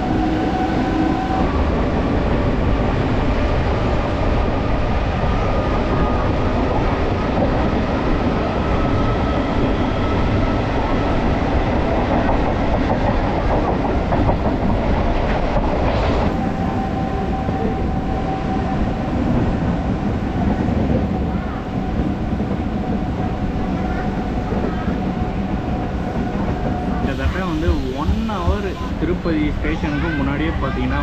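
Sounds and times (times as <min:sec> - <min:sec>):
train wheels clattering on rails: 0:05.8 - 0:30.1.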